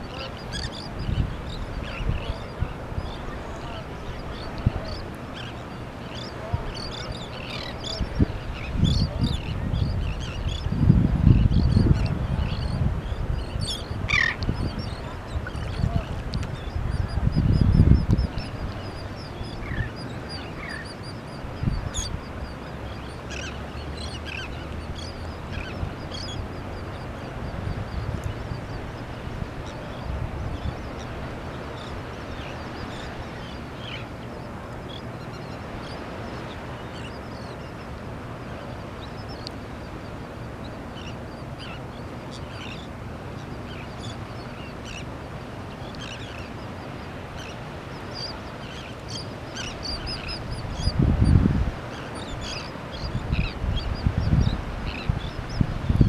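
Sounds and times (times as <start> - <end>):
terns and gulls calling: 0.0 - 56.0
wind buffeting microphone: 6.5 - 23.4, 49.3 - 56.0.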